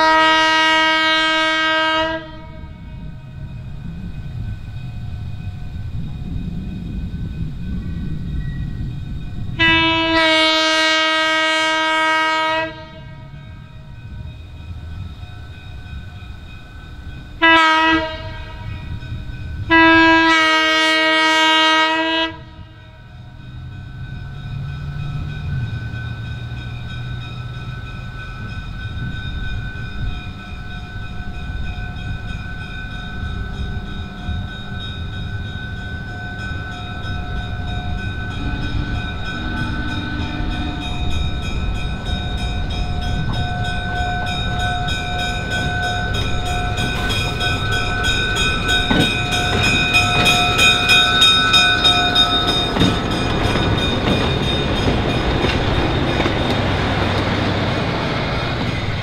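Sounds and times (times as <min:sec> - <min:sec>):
locomotive horn blasts: 0:00.0 - 0:03.0, 0:09.6 - 0:13.5, 0:17.4 - 0:19.0, 0:19.7 - 0:23.0, 0:38.2 - 0:41.4
train rumbling: 0:00.0 - 0:59.0.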